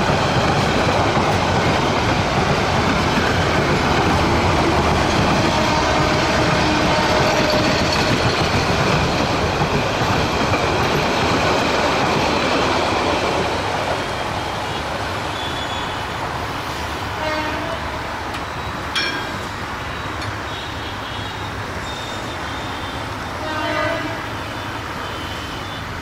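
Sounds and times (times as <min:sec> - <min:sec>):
train coaches rattling on rails: 0:00.0 - 0:26.0.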